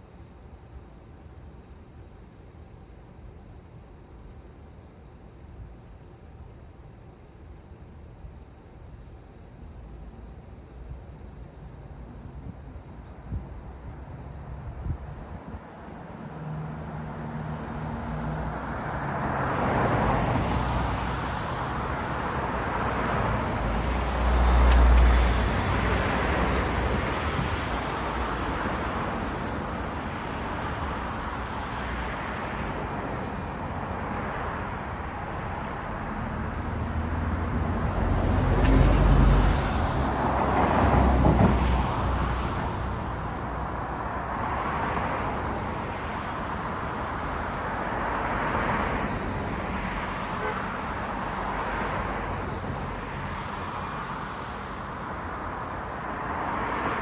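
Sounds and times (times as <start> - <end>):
cars passing: 16.4 - 57.0.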